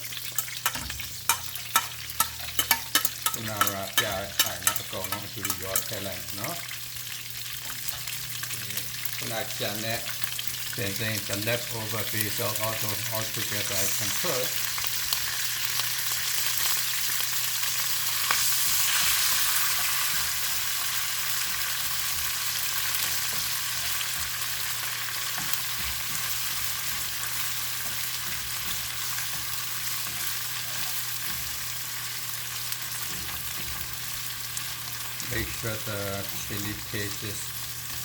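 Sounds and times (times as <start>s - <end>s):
food sizzling in hot oil: 0.0s - 38.0s.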